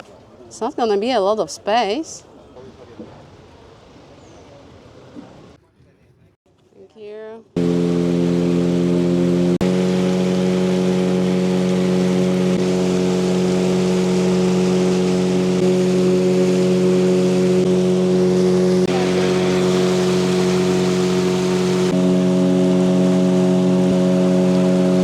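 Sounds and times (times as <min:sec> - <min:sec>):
outboard motor droning: 0:07.6 - 0:25.0
rushing water noise: 0:07.6 - 0:25.0.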